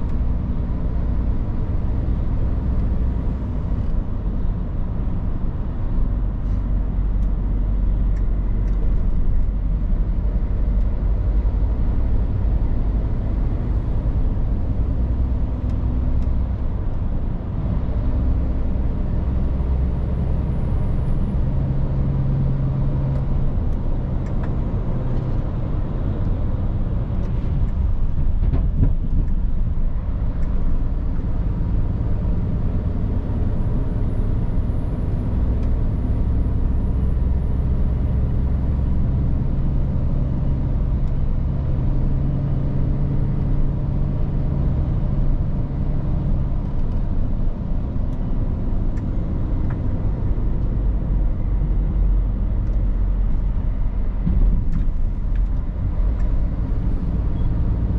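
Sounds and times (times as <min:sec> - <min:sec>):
road and tyre noise: 0:00.0 - 0:57.9.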